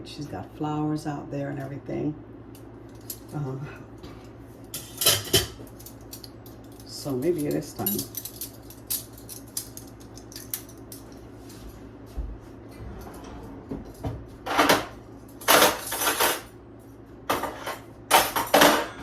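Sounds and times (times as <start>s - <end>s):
low steady hum: 0.0s - 19.0s
dishes and utensils clattering: 4.8s - 6.3s, 12.8s - 16.5s, 17.3s - 19.0s.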